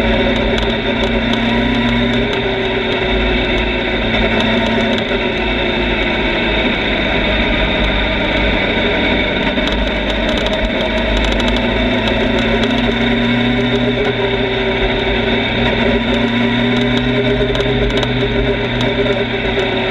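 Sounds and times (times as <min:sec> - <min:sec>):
motorcycle engine running: 0:00.0 - 0:19.9.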